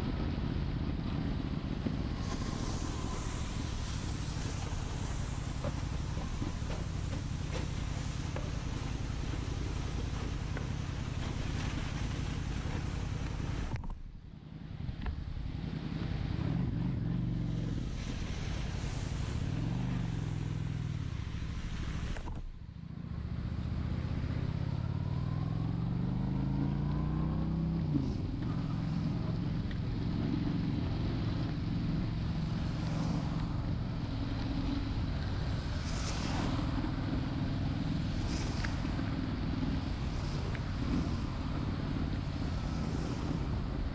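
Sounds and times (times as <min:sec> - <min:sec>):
wind and rain noise: 0:00.0 - 0:43.9
motorcycle engine accelerating: 0:14.6 - 0:43.9.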